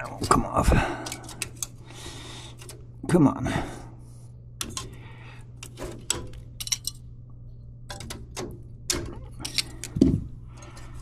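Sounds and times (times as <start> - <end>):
metal fins clicking and scraping: 0.0 - 2.9, 4.6 - 5.0, 5.6 - 7.0, 7.9 - 11.0
steady low hum: 0.0 - 11.0.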